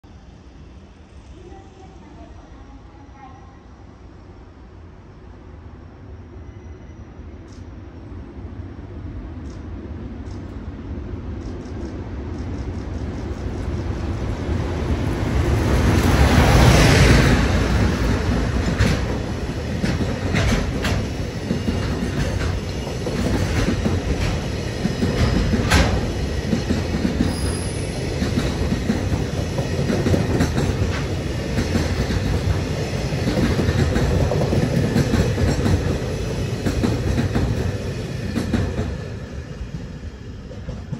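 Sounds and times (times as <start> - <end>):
steel wheels rumbling on rail: 8.9 - 40.9.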